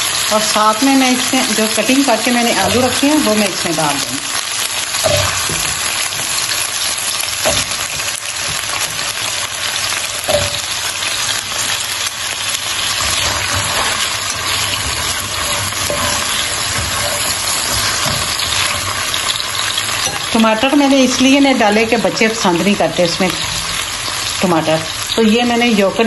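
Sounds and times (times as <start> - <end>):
potatoes sizzling in oil: 0.0 - 26.0
spatula stirring: 4.7 - 22.4
potato pieces knocking in pan: 4.8 - 20.8.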